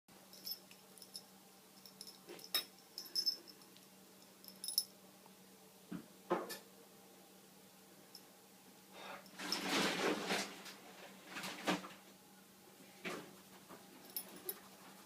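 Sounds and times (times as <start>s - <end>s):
collar bell jingling: 0.3s - 3.7s, 4.3s - 4.9s.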